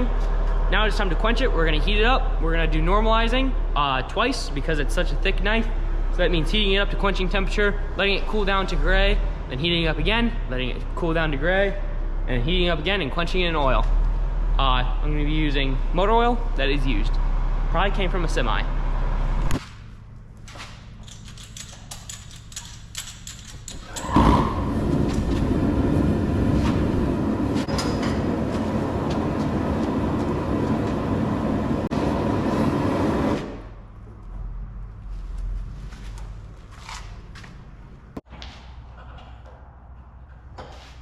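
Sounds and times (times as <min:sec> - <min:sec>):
gas burner roaring: 0:23.9 - 0:33.8.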